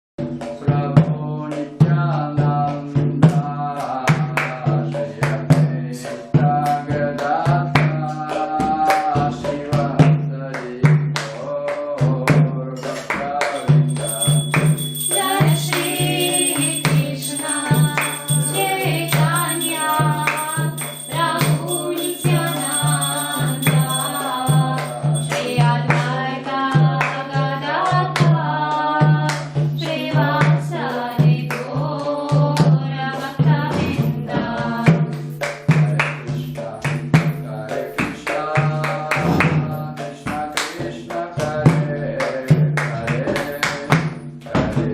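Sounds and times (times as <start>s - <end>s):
voices singing a chant: 0.5s - 44.9s
jingling hand percussion: 3.2s - 44.9s
drum beat: 13.4s - 28.4s.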